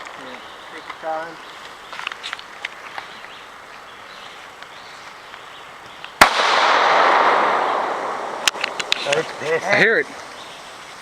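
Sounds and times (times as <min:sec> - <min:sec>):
pistol shot: 0:06.2 - 0:09.0
loud hiss: 0:06.2 - 0:11.0.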